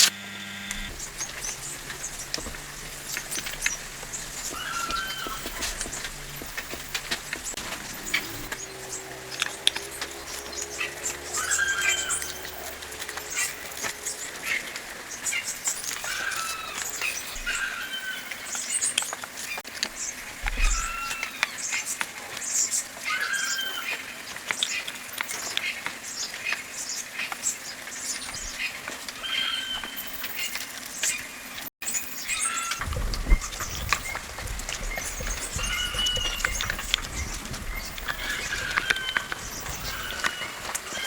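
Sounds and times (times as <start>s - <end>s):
birds whistled chirps: 0.7s - 41.0s.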